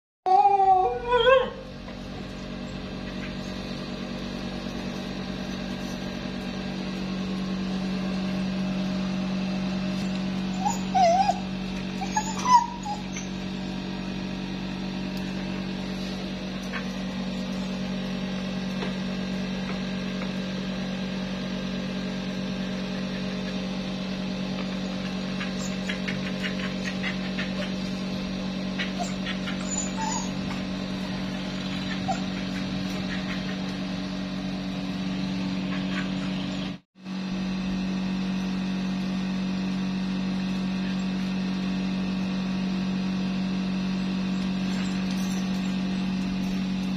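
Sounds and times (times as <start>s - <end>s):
puppy whimpering: 0.3s - 1.7s, 10.5s - 13.5s, 25.4s - 27.8s, 28.8s - 30.7s, 31.5s - 33.6s
steady low hum: 1.0s - 46.9s.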